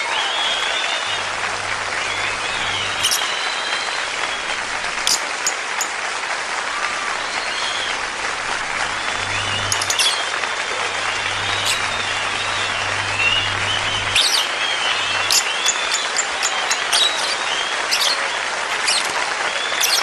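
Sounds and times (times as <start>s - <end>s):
low steady hum: 1.1s - 5.4s, 6.6s - 15.6s
lovebirds chirping: 1.2s - 5.9s, 7.2s - 19.1s, 19.8s - 20.0s
shrill bird squeak: 2.8s - 3.4s, 9.7s - 10.2s, 14.2s - 14.4s, 15.2s - 18.3s, 19.8s - 20.0s.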